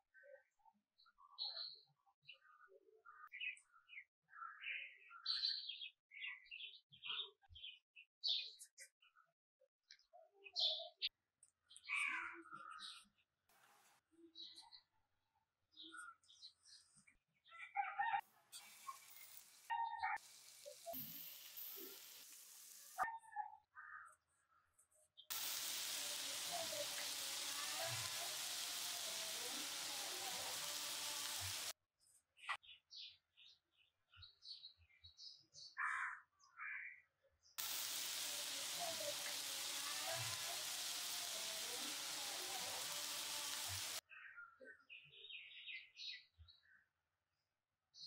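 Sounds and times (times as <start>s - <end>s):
oil sizzling in a pan: 18.6s - 23.0s, 25.3s - 31.8s, 37.6s - 44.0s
faint high chirps: 18.6s - 23.4s, 25.3s - 31.7s.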